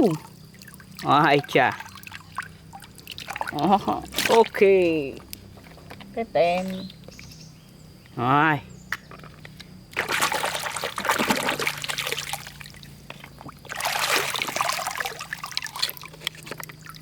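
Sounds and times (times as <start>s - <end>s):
water pouring and splashing: 0.0s - 4.8s, 9.9s - 17.0s.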